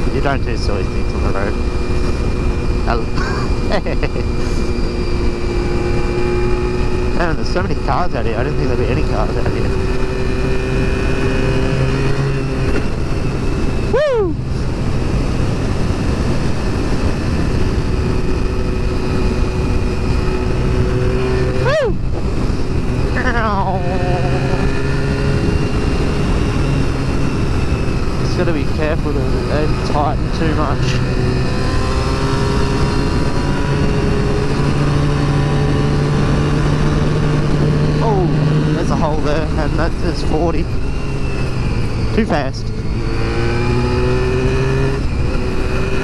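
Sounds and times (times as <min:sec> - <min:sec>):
motorcycle engine running: 0:00.0 - 0:46.0
wind noise: 0:00.0 - 0:46.0.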